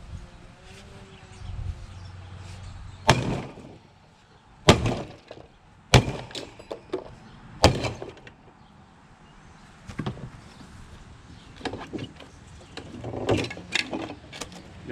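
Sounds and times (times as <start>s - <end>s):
maul striking metal: 3.0s - 3.8s, 4.7s - 7.0s, 7.6s - 8.2s
knocks and rattles: 3.1s - 3.8s, 4.7s - 8.4s, 11.4s - 14.8s.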